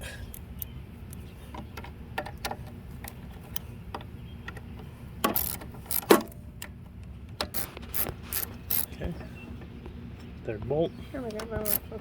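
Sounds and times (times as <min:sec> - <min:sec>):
hand tools clicking and tapping: 0:11.3 - 0:12.0.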